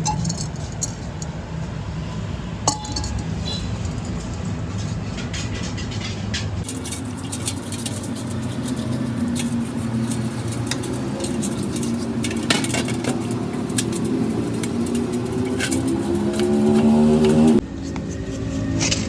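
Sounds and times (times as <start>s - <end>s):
motor humming: 6.6s - 17.6s.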